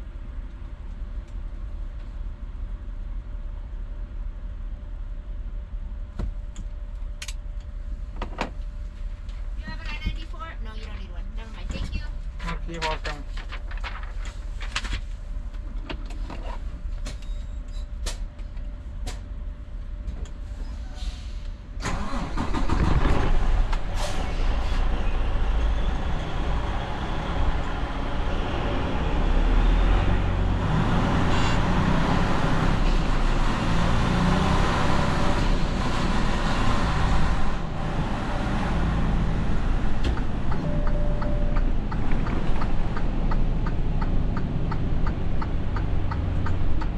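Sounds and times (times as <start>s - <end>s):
truck diesel engine: 19.0s - 46.9s.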